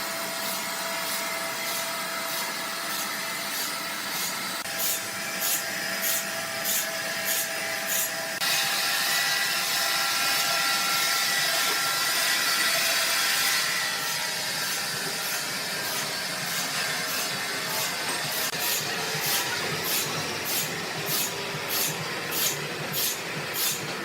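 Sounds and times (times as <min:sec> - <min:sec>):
rhythmic sawmill scraping: 0:00.0 - 0:24.0
mechanical hiss with high whine: 0:11.9 - 0:23.9.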